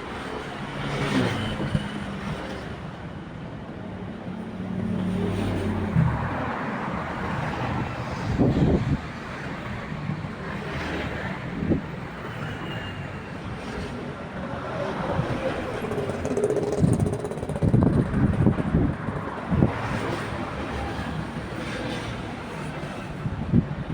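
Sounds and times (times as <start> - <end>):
engine and traffic noise: 0.0 - 23.9.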